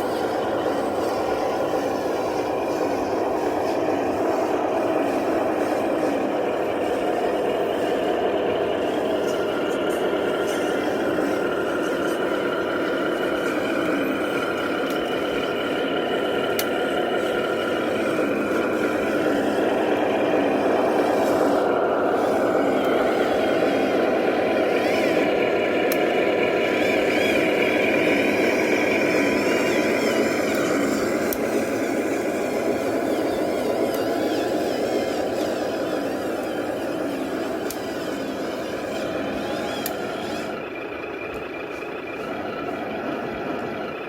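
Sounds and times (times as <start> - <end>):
model truck drivetrain whine: 0.0 - 44.0.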